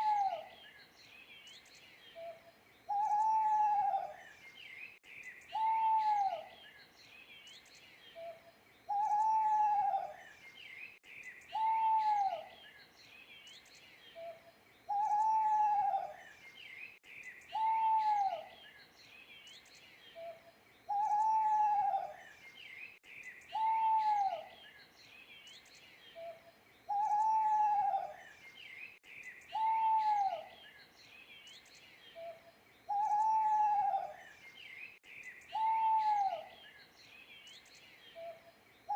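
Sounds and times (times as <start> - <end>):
owl hooting: 0.0 - 0.5, 2.2 - 4.2, 5.5 - 6.5, 8.2 - 10.2, 11.5 - 12.5, 14.2 - 16.2, 17.5 - 18.5, 20.2 - 22.2, 23.5 - 24.5, 26.2 - 28.2, 29.5 - 30.6, 32.2 - 34.2, 35.5 - 36.6
small birds chirping faintly: 0.0 - 38.9.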